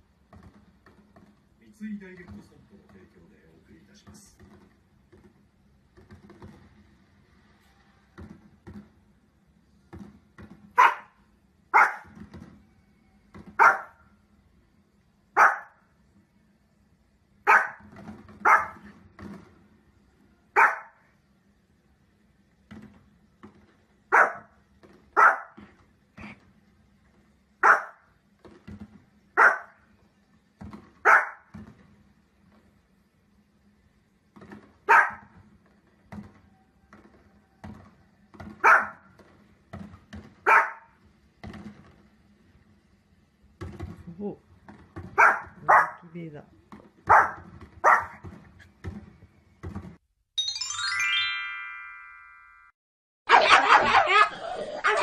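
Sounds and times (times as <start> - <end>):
small dog barking: 10.8 - 12.1, 13.6 - 14.0, 15.4 - 15.8, 17.5 - 17.8, 18.4 - 18.8, 20.6 - 21.0, 24.1 - 24.5, 25.2 - 25.6, 27.6 - 28.0, 29.4 - 29.8, 31.0 - 31.5, 34.9 - 35.3, 38.6 - 39.0, 40.5 - 40.9, 45.2 - 46.0, 47.1 - 48.2, 53.3 - 55.0.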